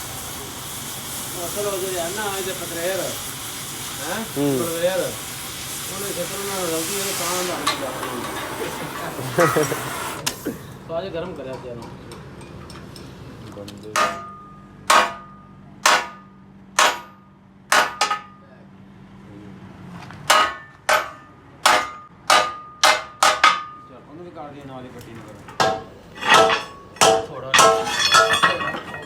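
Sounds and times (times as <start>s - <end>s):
hammer striking metal: 14.0s - 18.4s, 20.3s - 23.8s, 25.5s - 29.0s.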